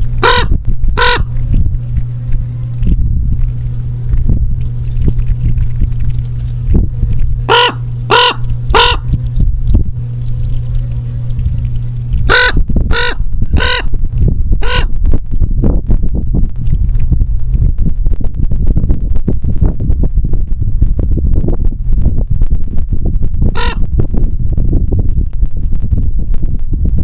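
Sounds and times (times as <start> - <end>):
steady low hum: 0.0 - 27.0
crow cawing: 0.2 - 1.3, 7.5 - 9.1, 12.3 - 13.9.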